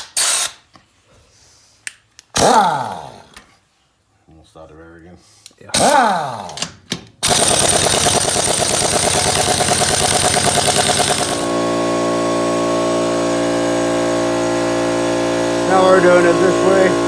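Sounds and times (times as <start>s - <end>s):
pneumatic impact wrench rattling: 0.0s - 0.8s, 2.3s - 3.4s, 5.7s - 11.7s
steady machine hum: 7.3s - 17.0s.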